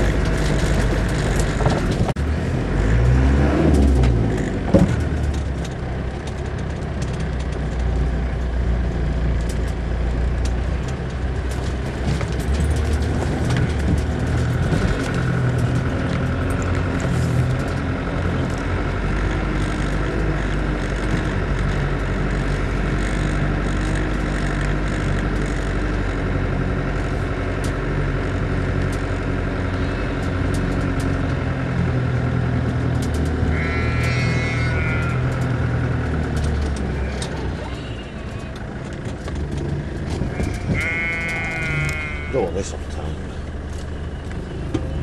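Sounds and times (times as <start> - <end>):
knocks and rattles over bumps: 0.0 - 45.0
vehicle engine running: 0.0 - 45.0
sheep bleating: 22.3 - 23.4, 33.5 - 35.6, 40.3 - 42.6.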